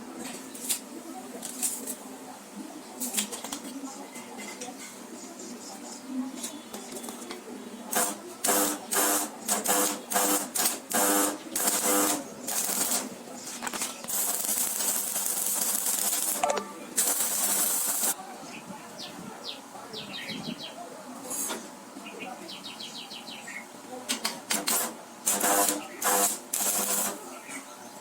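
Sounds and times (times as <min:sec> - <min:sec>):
steady hiss: 0:07.8 - 0:18.2, 0:24.5 - 0:27.6
power tool short bursts: 0:07.9 - 0:13.1, 0:24.5 - 0:27.2.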